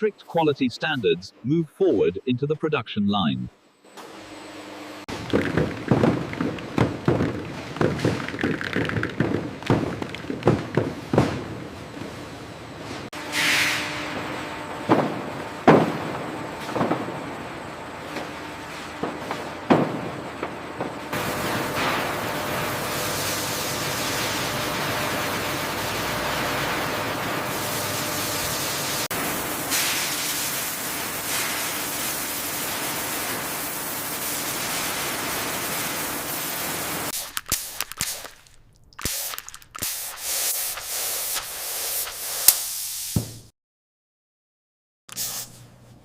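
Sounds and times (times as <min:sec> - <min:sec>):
sharp clicks and knocks: 0:05.1 - 0:11.4.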